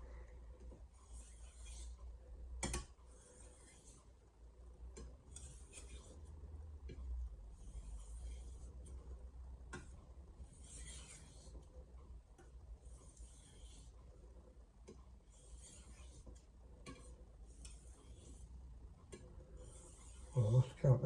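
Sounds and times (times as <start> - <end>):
knife scraping on whetstone: 1.0 - 2.0, 3.1 - 4.1, 5.3 - 6.2, 7.6 - 8.7, 10.4 - 11.6, 12.9 - 14.0, 15.3 - 18.5, 19.6 - 20.6.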